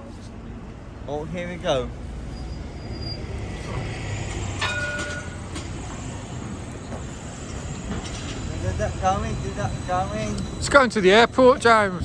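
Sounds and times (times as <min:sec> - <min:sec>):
tram rumbling: 0:00.0 - 0:12.0
ringing chime: 0:08.5 - 0:11.8.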